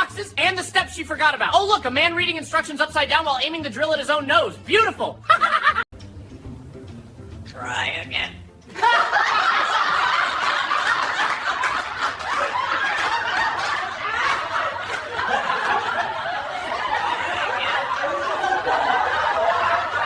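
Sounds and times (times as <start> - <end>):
continuous laughter: 5.2 - 5.9, 8.7 - 20.0.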